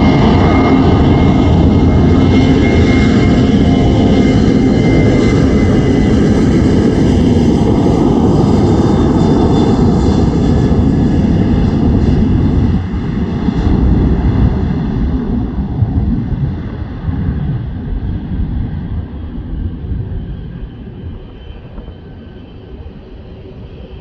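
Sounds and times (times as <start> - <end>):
jet engines rumbling: 0.0 - 24.0.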